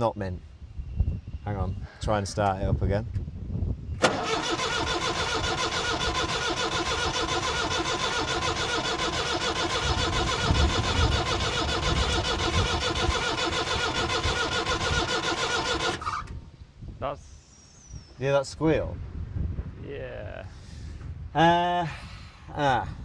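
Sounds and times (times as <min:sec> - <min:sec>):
starter cranking diesel engine: 0:04.0 - 0:16.4.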